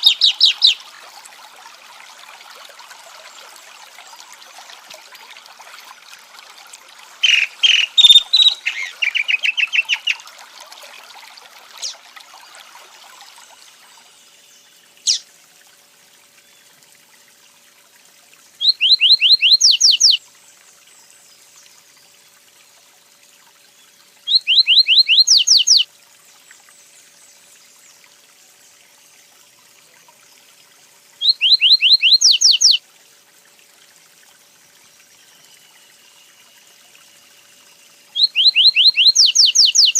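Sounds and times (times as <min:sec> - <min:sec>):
songbird whistled song: 0:00.0 - 0:00.9, 0:07.2 - 0:10.2, 0:13.5 - 0:15.3, 0:18.6 - 0:20.2, 0:23.7 - 0:26.5, 0:31.2 - 0:32.8, 0:35.1 - 0:39.9
running water: 0:00.0 - 0:39.9
loud bird notes: 0:07.2 - 0:10.2.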